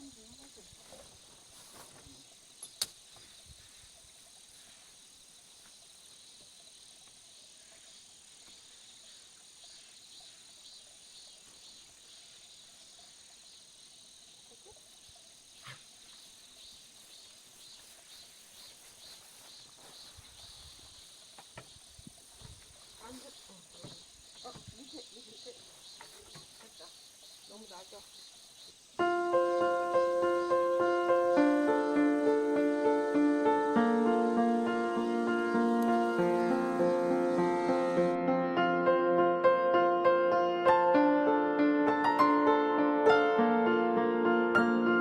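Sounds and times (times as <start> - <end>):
insects chirring: 0.0 - 38.3
sharp click: 2.6 - 3.0.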